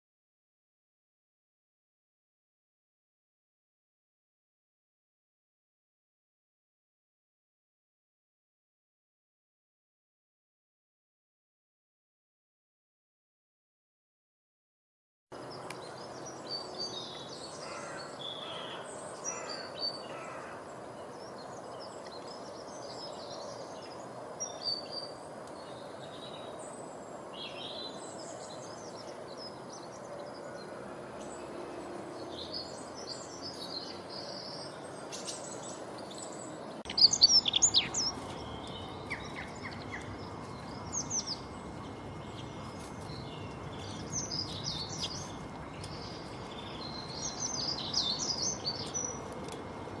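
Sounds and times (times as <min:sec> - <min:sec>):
songbirds chirping: 0:15.4 - 0:50.0.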